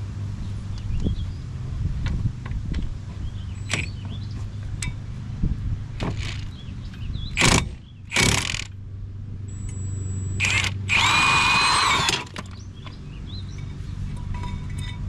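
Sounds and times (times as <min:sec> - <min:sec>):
steady low hum: 0:00.0 - 0:15.0
impact tool bursts: 0:07.4 - 0:08.7, 0:10.4 - 0:12.5.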